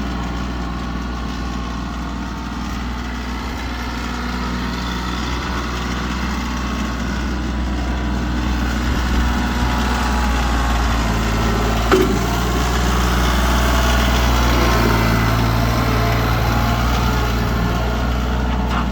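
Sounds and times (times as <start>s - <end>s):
tractor engine running: 0.0s - 18.9s
brief knock: 11.9s - 12.6s.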